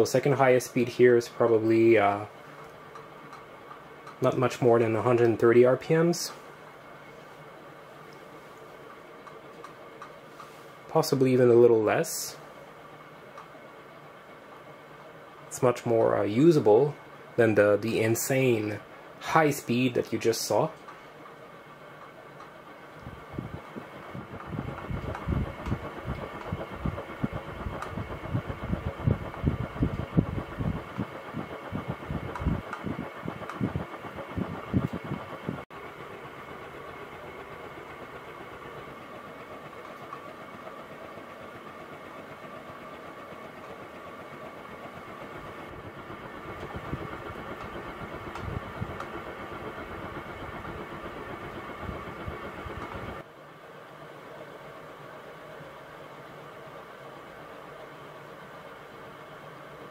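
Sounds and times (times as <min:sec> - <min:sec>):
ceiling fan motor hum: 0:00.0 - 0:59.9
air gusts and rumbles: 0:23.0 - 0:36.1, 0:45.1 - 0:53.2.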